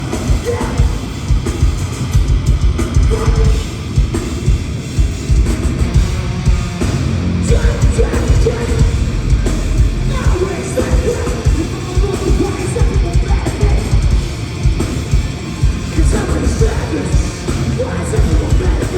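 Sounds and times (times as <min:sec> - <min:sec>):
heavy metal band playing live: 0:00.0 - 0:18.9
loud drums: 0:00.0 - 0:18.9
person singing: 0:07.5 - 0:14.1, 0:15.9 - 0:18.9.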